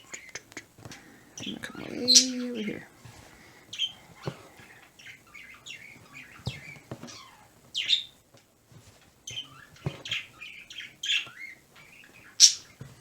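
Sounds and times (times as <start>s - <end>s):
pet birds chirping: 0.0s - 8.3s, 9.2s - 12.8s
soft knocks: 8.8s - 10.4s.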